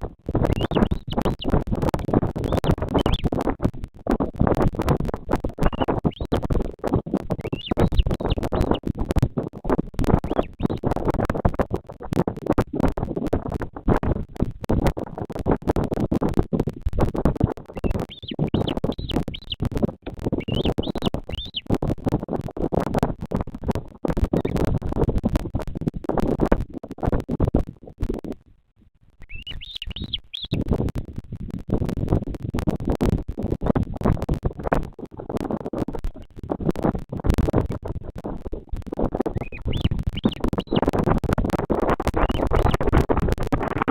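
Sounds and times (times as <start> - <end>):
wind buffeting microphone: 0.0 - 28.4, 29.3 - 43.9
high chirping bird calls: 0.5 - 1.4, 7.4 - 8.8, 17.8 - 19.6, 20.4 - 21.7, 29.2 - 30.6, 39.4 - 40.8.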